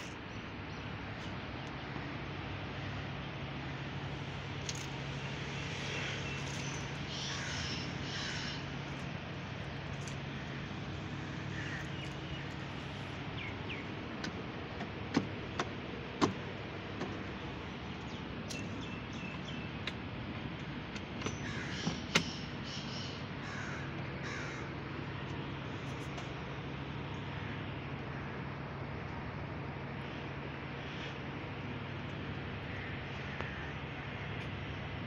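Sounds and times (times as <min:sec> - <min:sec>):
low steady hum: 0:00.0 - 0:35.0
harsh bird calls: 0:05.8 - 0:14.0, 0:21.3 - 0:24.8.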